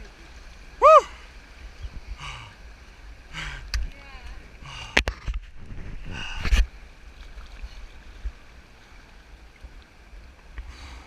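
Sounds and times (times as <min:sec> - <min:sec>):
whitewater rushing: 0:00.0 - 0:05.0.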